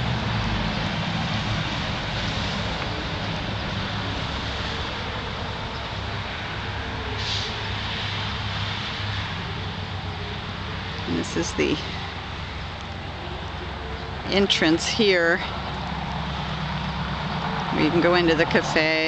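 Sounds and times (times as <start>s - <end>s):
vehicle engine hum: 0.0s - 19.0s
broad hiss: 7.2s - 8.0s.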